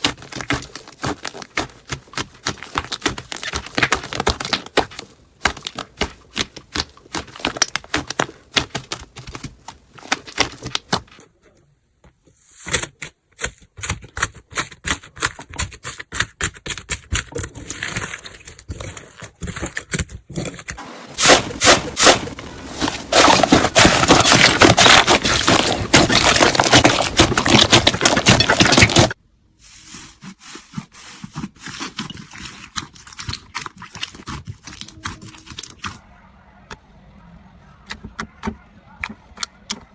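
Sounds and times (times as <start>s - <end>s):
slime crackling and popping: 0.0s - 11.0s, 21.2s - 29.2s.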